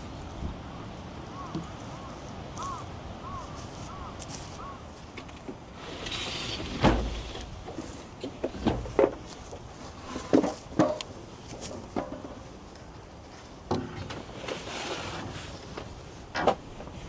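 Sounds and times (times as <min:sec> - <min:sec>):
knocks and clunks of handling: 0:06.6 - 0:12.6, 0:15.7 - 0:17.0.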